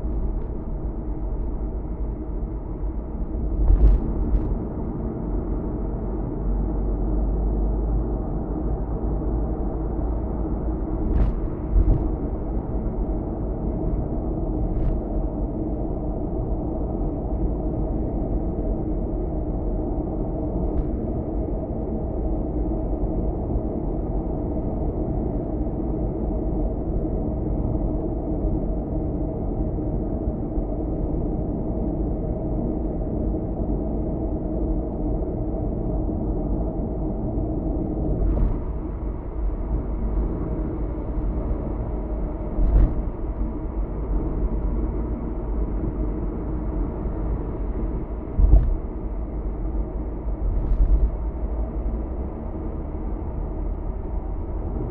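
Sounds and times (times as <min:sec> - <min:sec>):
car road and engine noise: 0:00.0 - 0:54.9
short thumps: 0:48.4 - 0:48.9.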